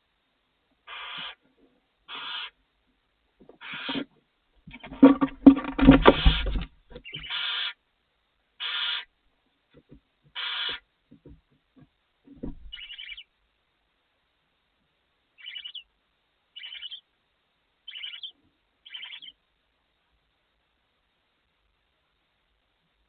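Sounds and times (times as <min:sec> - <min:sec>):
owl chittering calls: 0:00.9 - 0:01.4, 0:02.1 - 0:02.6, 0:03.6 - 0:04.1, 0:07.0 - 0:07.8, 0:08.6 - 0:09.1, 0:10.3 - 0:10.8, 0:12.7 - 0:13.3, 0:15.4 - 0:15.9, 0:16.6 - 0:17.1, 0:17.9 - 0:19.4
owl hissing screech: 0:00.9 - 0:01.4, 0:02.1 - 0:02.6, 0:03.6 - 0:04.0, 0:07.2 - 0:07.8, 0:08.6 - 0:09.1, 0:10.4 - 0:10.8
soft thumps of movement: 0:11.1 - 0:12.9.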